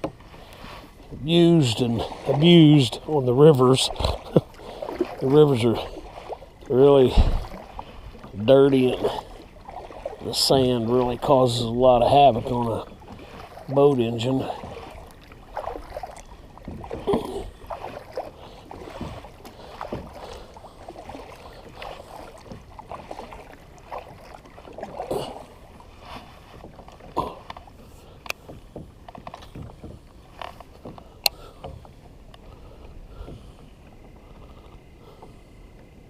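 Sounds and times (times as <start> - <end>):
water splashing around kayak: 0.0 - 36.0
sharp knocks against hull: 7.0 - 7.6, 26.6 - 31.9.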